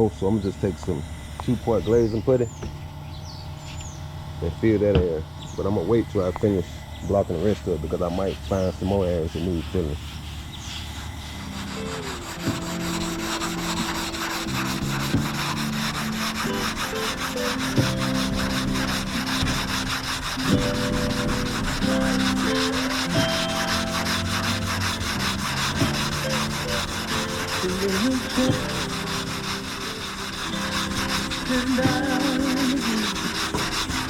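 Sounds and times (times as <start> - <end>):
sanding block rubbing: 7.1 - 34.0
background music: 11.3 - 34.0.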